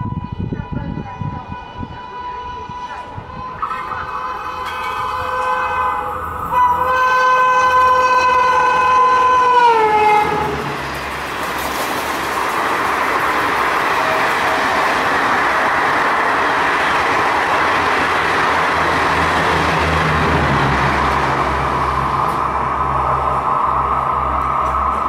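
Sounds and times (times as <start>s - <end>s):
locomotive horn: 0.0s - 11.0s, 13.8s - 15.2s
train wheels on rail: 1.8s - 25.0s.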